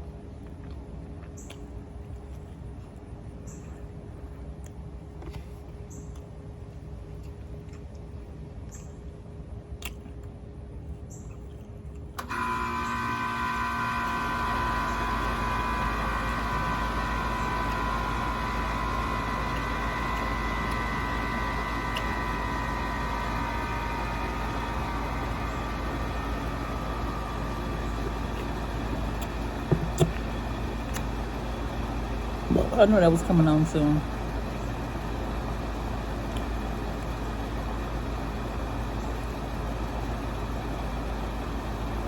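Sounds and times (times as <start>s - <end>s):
machine low hum: 0.0s - 42.0s
machine whine of held tones: 12.2s - 42.0s.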